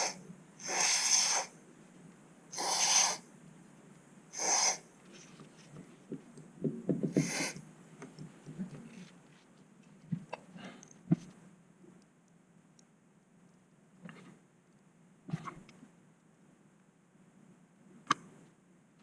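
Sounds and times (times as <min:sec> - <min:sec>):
aerosol spray hissing: 0:00.0 - 0:01.5, 0:02.5 - 0:03.2, 0:04.3 - 0:04.8, 0:07.1 - 0:07.6.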